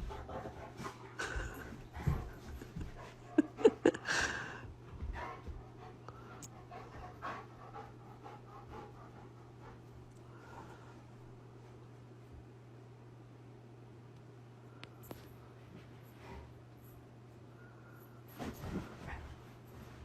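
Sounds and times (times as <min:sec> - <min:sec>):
dog panting: 0:00.0 - 0:10.7.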